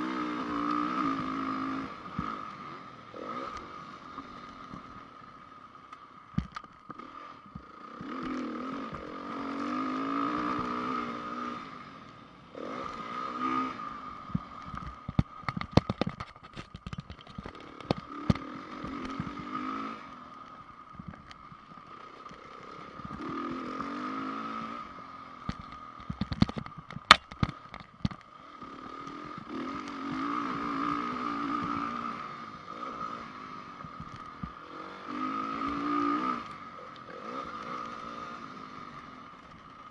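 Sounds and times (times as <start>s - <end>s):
dirt bike engine revving: 0.0s - 5.4s, 6.9s - 16.0s, 17.3s - 20.9s, 21.5s - 26.4s, 28.4s - 39.9s
knocks and clatter from bike: 6.3s - 9.1s, 14.4s - 19.5s, 25.4s - 28.3s.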